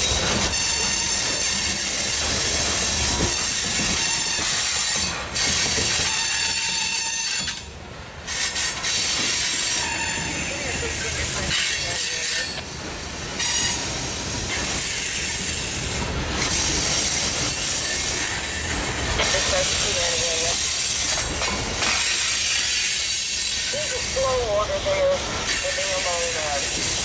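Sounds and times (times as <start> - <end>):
train wheels rushing on rails: 0.0 - 27.0
faint high wheel squeal: 9.8 - 10.6.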